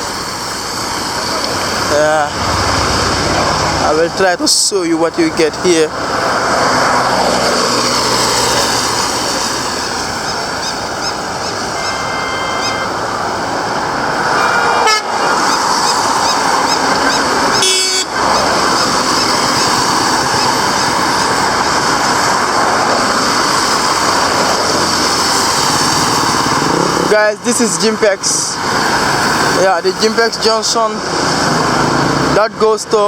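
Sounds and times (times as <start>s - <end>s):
passing vehicles: 0.0s - 33.0s
vehicle horn: 11.7s - 13.1s, 14.4s - 15.3s, 17.5s - 18.2s.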